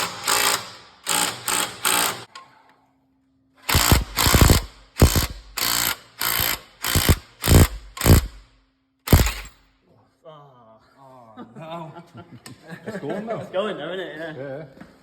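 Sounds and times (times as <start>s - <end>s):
power tool bursts: 0.0s - 2.3s, 3.6s - 8.5s, 9.1s - 9.6s.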